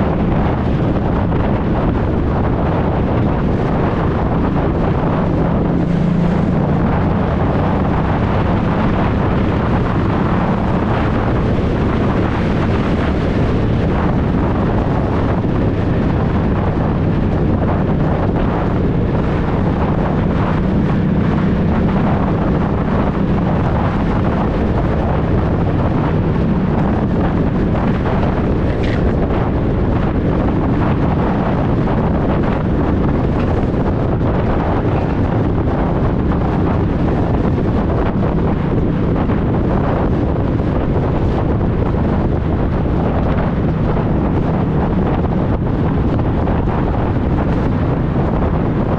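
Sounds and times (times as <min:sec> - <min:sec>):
motorcycle engine running: 0:00.0 - 0:48.9
wind rushing over microphone: 0:00.0 - 0:48.9.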